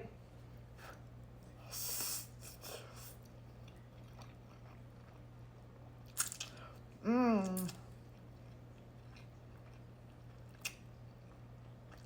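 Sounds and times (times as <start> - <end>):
steady low hum: 0.0 - 12.0
chewing noodles: 2.5 - 6.7, 7.6 - 12.0.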